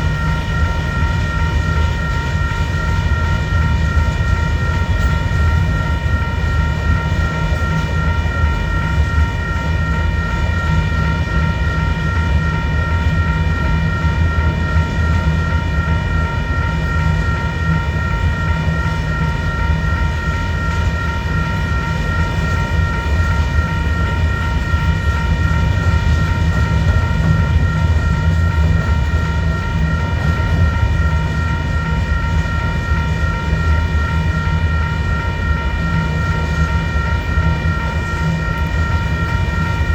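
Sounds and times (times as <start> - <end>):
high ringing tone: 0.0 - 39.9.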